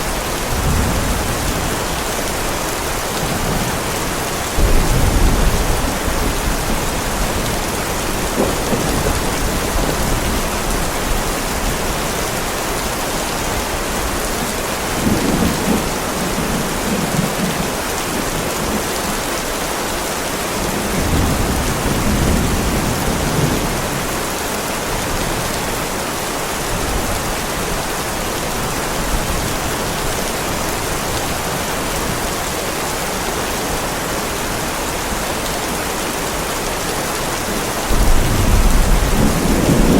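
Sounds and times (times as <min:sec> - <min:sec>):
heavy rain pouring: 0:00.0 - 0:39.9
low thunder rumbles: 0:00.1 - 0:12.2, 0:37.9 - 0:39.9.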